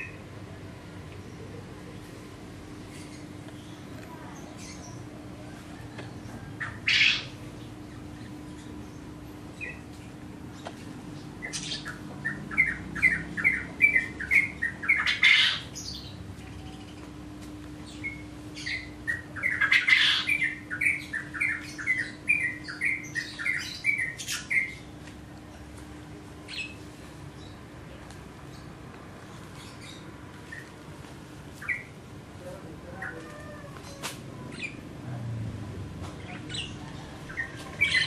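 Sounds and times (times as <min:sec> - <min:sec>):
bird squawk: 0:06.6 - 0:07.4, 0:11.4 - 0:15.8, 0:18.6 - 0:24.7.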